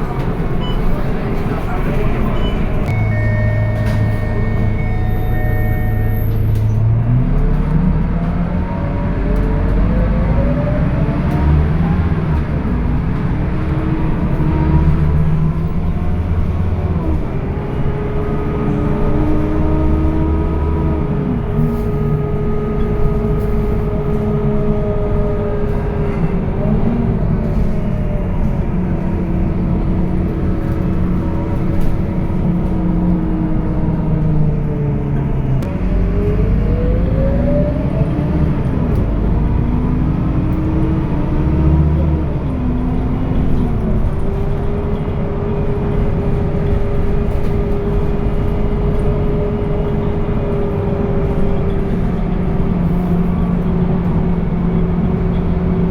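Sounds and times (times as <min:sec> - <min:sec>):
bus diesel engine accelerating: 0:00.0 - 0:55.9
steady high tone: 0:02.4 - 0:06.7.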